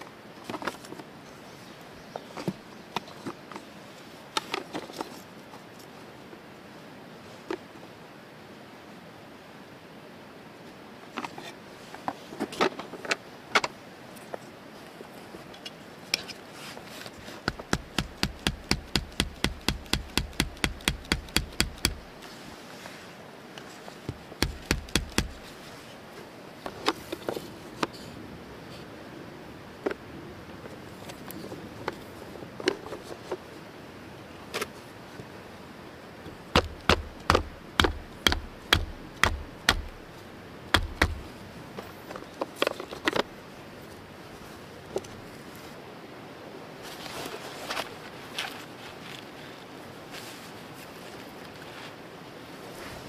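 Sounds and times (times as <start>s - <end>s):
chopping blows on wood: 17.5s - 22.1s, 24.1s - 25.5s, 36.5s - 40.0s, 40.8s - 41.3s
sharp even knocks: 17.5s - 22.1s, 24.4s - 25.4s, 36.6s - 40.0s, 40.8s - 41.2s.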